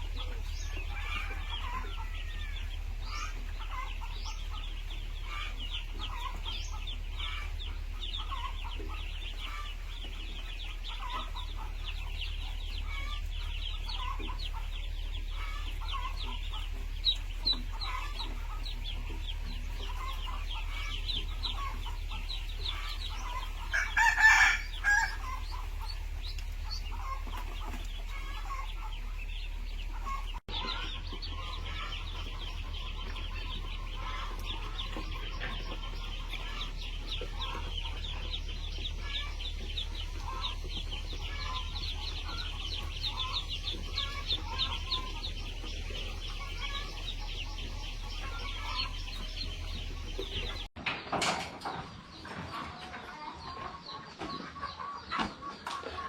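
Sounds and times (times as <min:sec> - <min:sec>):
chickens clucking: 0:00.0 - 0:56.0
chicks peeping: 0:00.0 - 0:56.0
rooster crowing: 0:00.2 - 0:08.2, 0:20.0 - 0:28.8.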